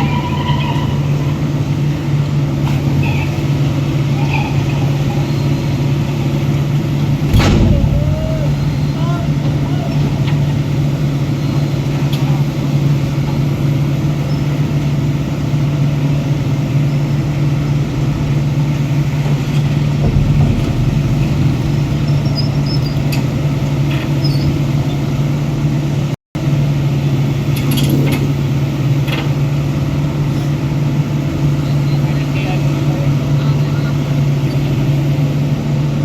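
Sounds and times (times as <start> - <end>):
diesel engine droning: 0.0 - 26.1
faint clanks: 7.2 - 12.6, 17.4 - 25.2.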